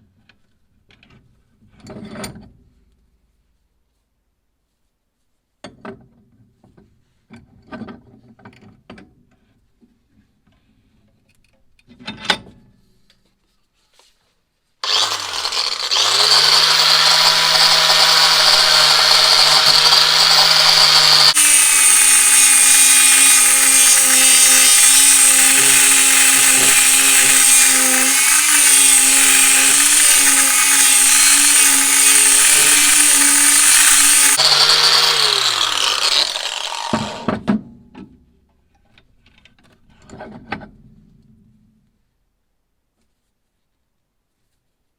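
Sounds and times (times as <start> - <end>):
electric power tool motor: 14.8 - 37.4.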